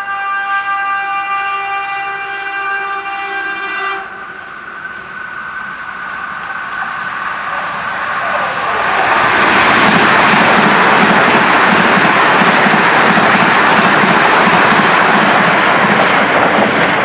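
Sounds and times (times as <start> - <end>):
train horn chord: 0.0 - 4.8
electric train passing by: 0.0 - 17.0.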